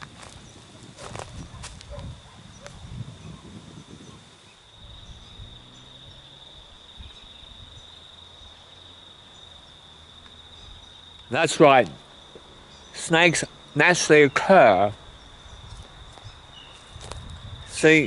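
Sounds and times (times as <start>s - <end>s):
footsteps on path: 0.0s - 2.7s, 15.6s - 17.7s
insect chorus trilling: 0.0s - 18.0s.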